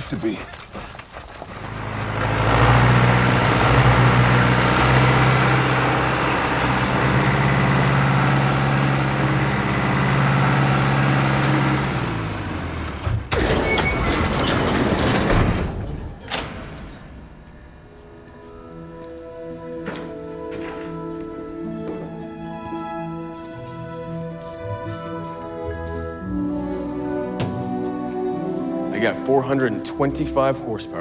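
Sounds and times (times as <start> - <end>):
vehicle engine running: 1.4 - 13.4
rattling scraping noise: 13.3 - 16.1.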